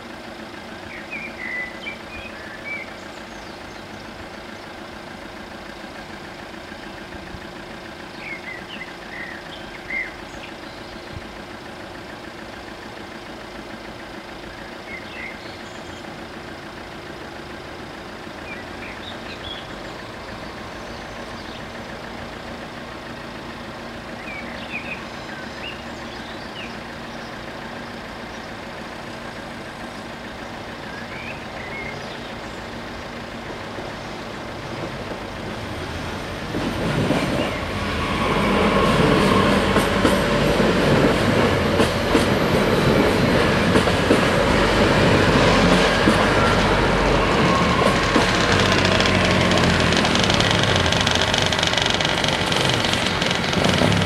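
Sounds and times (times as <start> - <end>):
train passing: 16.2 - 54.0
train wheels clattering: 33.4 - 54.0.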